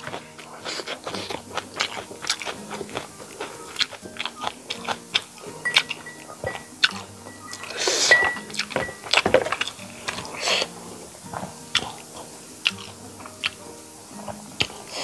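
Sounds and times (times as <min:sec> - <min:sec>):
soft background music: 0:00.0 - 0:15.0
wet mouth clicks and chewing: 0:00.0 - 0:15.0.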